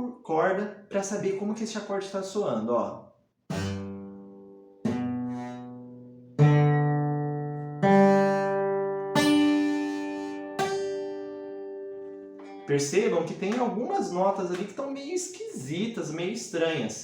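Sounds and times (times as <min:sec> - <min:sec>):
acoustic guitar plucked notes: 0:03.5 - 0:14.6.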